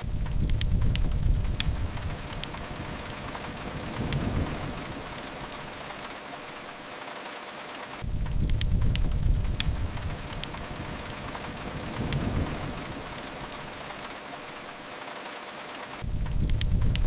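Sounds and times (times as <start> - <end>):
deep low rumble: 0.0 - 5.9, 8.0 - 13.9
rain hiss: 0.0 - 17.0
wood fire crackling and popping: 0.0 - 17.0.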